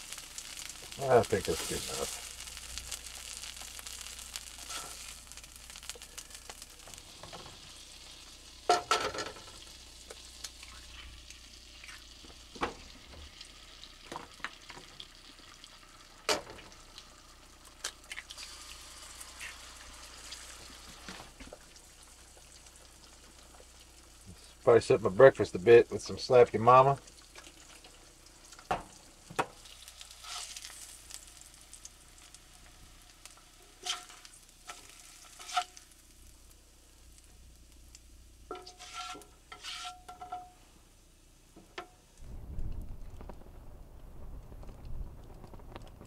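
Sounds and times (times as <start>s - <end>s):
food sizzling in a pan: 0.0s - 43.4s
utensil scraping and knocking pan: 38.5s - 40.6s.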